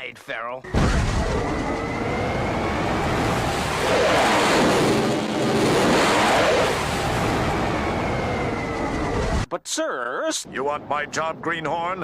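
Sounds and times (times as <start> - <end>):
cartoon rushing noise: 3.2 - 9.5.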